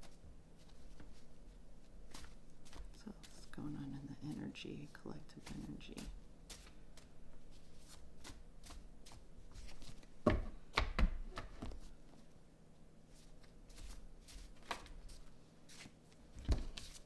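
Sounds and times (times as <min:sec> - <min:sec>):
cards being shuffled: 0:02.1 - 0:04.4, 0:05.2 - 0:10.1, 0:13.2 - 0:17.0.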